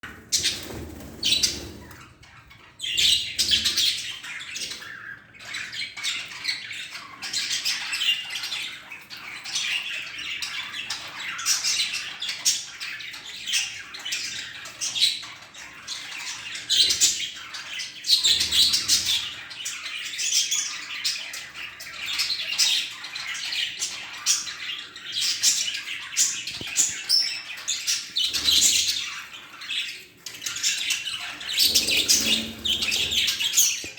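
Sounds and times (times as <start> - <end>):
budgerigars chattering: 30.6 - 33.9.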